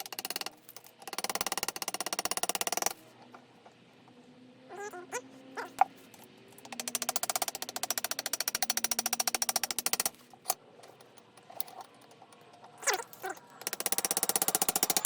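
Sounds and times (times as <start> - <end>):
ratchet clicking: 0.0 - 3.0, 6.6 - 11.8, 12.9 - 15.0.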